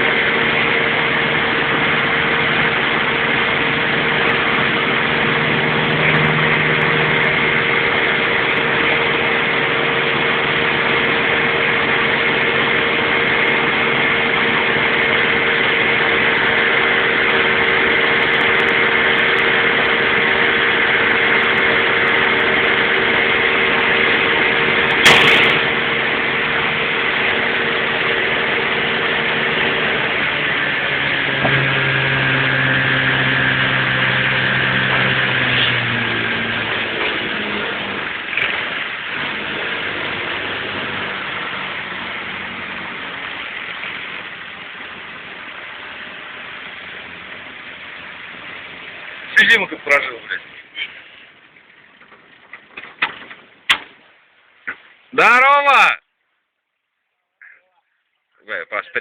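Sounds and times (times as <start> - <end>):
motorboat engine droning: 0.0 - 59.0
short sharp knock: 25.0 - 25.7.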